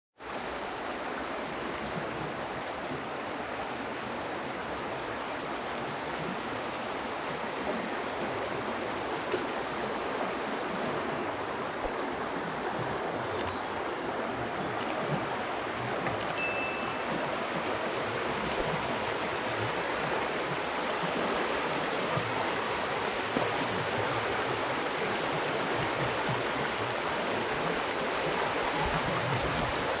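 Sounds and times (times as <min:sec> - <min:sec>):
stream rushing over rocks: 0:00.2 - 0:30.0.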